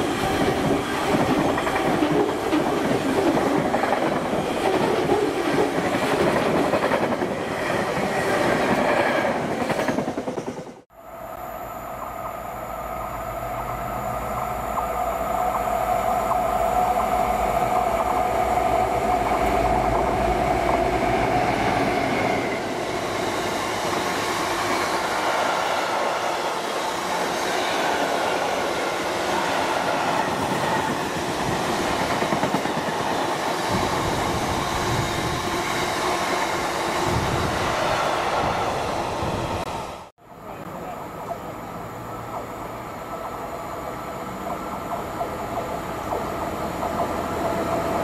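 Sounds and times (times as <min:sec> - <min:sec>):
train wagons rumbling on rails: 0:00.0 - 0:10.8, 0:13.2 - 0:39.9.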